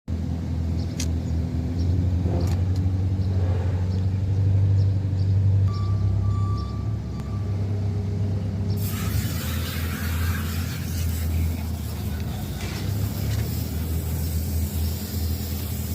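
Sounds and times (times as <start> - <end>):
car engine idling: 5.2 - 15.9
spray can hissing: 8.8 - 15.9.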